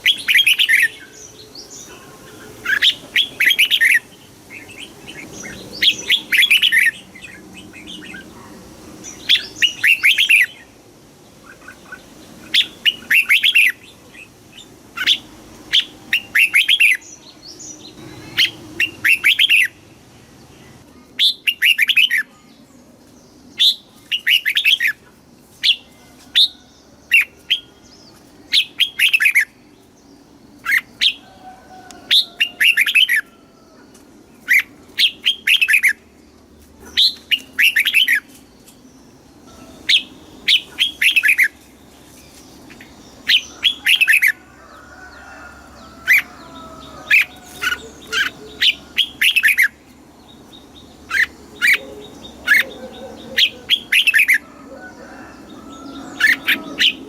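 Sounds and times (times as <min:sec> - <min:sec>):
bird singing bright phrases: 0:00.0 - 0:10.8, 0:11.4 - 0:57.0.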